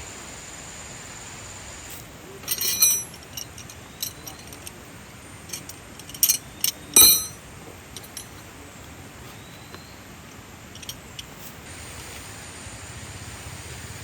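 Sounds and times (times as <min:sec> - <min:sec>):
steady hiss: 0:00.0 - 0:14.0
objects clinking and knocking: 0:02.4 - 0:04.8, 0:05.4 - 0:08.4, 0:10.7 - 0:11.4.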